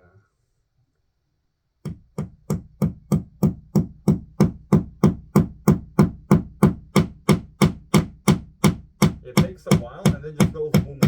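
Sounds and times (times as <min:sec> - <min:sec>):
hammer striking a nail: 0:01.8 - 0:11.0.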